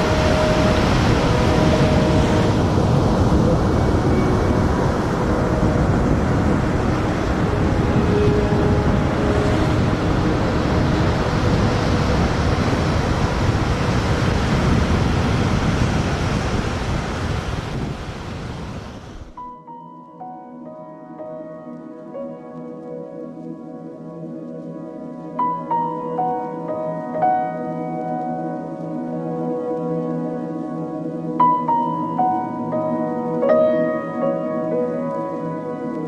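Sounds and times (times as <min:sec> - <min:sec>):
ocean waves breaking: 0:00.0 - 0:19.4.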